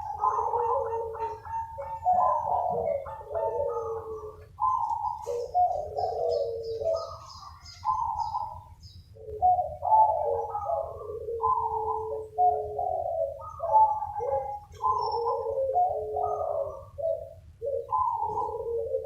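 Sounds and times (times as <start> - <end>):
doves cooing: 0.0 - 19.0.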